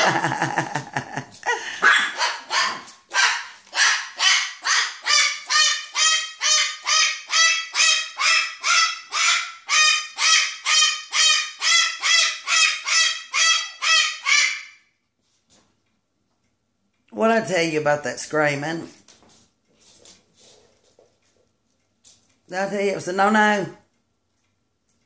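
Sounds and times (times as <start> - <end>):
pet screaming high calls: 1.9 - 14.8.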